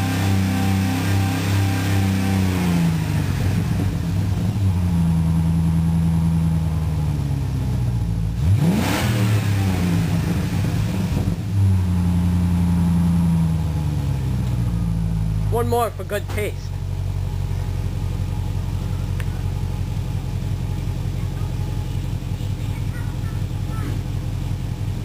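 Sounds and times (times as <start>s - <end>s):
sharp engine rev: 0.0s - 3.9s, 8.4s - 11.4s
engine exhaust running: 0.0s - 25.0s.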